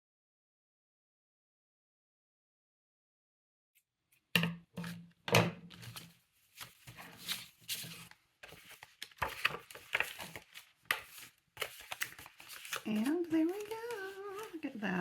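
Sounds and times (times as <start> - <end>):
paper rustling and crinkling: 5.6 - 15.0.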